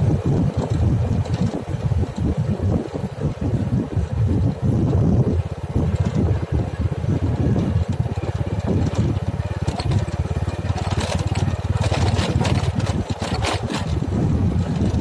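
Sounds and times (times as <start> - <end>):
digging machine engine running: 4.8 - 15.0.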